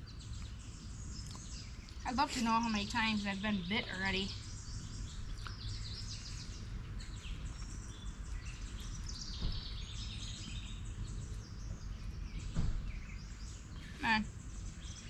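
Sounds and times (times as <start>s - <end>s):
birds chirping: 0.0s - 15.0s
steady low rumble: 0.0s - 15.0s.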